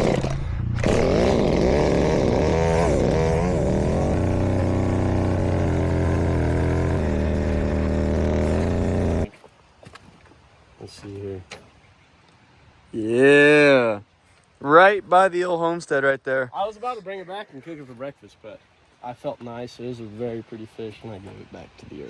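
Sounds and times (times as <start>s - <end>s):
chainsaw engine revving: 0.0s - 9.3s.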